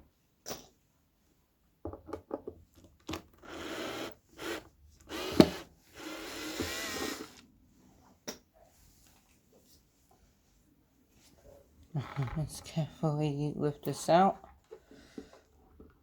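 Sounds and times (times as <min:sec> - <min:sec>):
rasping screw turning: 0:03.4 - 0:07.3.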